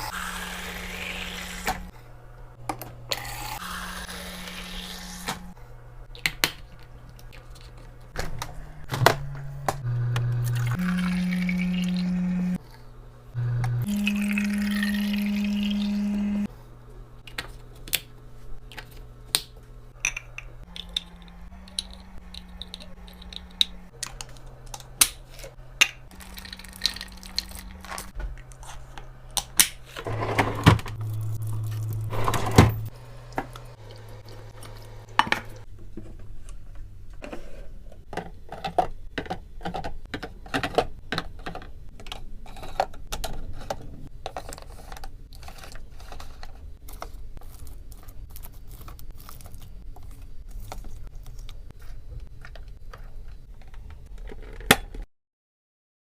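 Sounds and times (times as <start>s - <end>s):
low hum: 8.2s - 16.5s, 19.9s - 24.6s, 30.0s - 37.2s
items clinking and clattering: 37.2s - 47.1s.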